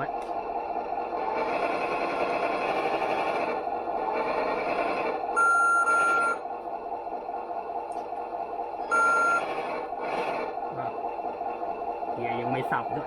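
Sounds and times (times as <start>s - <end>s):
model truck running noise: 0.0s - 13.0s
electronic beeps: 5.4s - 6.4s, 8.9s - 9.5s.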